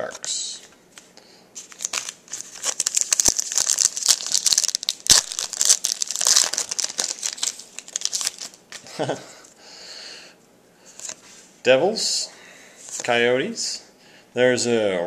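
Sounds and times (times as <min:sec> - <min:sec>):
wrapper crinkling and tearing: 0:01.6 - 0:08.8.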